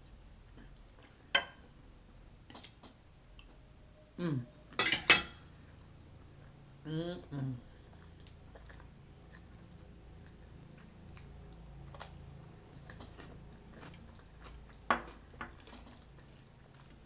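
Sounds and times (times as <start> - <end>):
person chewing cucumber: 7.8 - 17.0.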